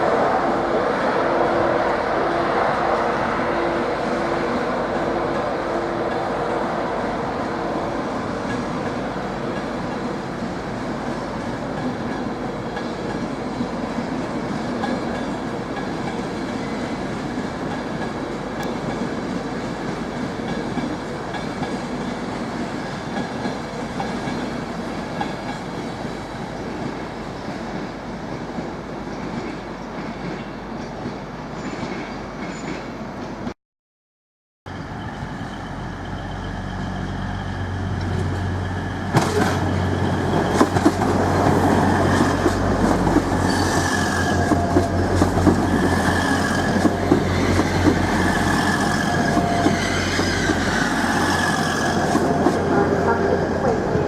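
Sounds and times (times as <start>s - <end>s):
train wheels clattering over rails: 35.1s - 52.7s.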